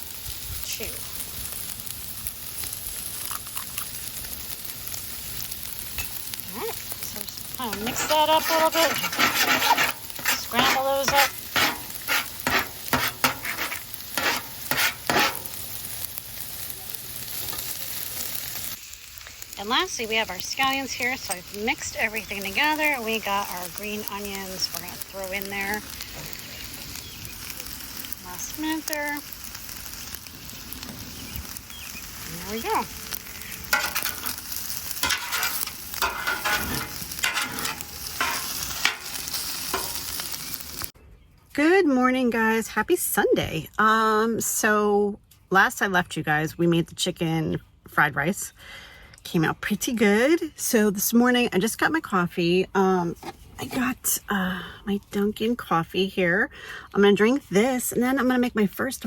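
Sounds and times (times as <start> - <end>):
food sizzling on a griddle: 0.0 - 41.0
spatula scraping a griddle: 5.4 - 16.6, 17.3 - 18.7, 30.8 - 40.9, 53.0 - 54.0.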